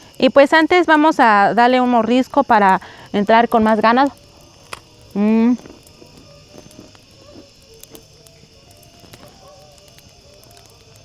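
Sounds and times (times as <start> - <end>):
crickets chirping: 0.0 - 11.0
faint clicks: 3.6 - 11.0.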